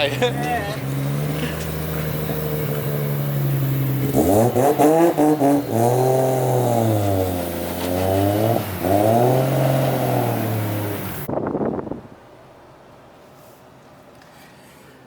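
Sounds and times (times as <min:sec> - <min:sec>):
car engine revving: 0:00.0 - 0:11.3.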